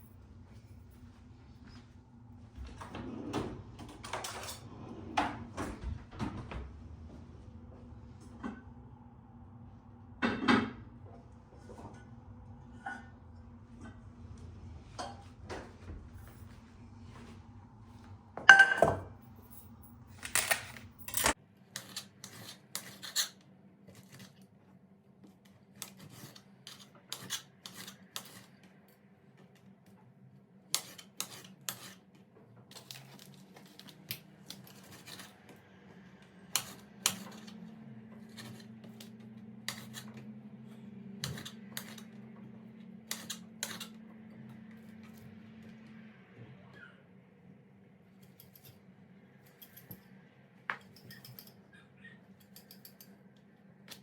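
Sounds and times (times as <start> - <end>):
faint low hum: 0.0 - 21.4
household objects clicking and clinking: 18.5 - 23.3, 49.4 - 51.6.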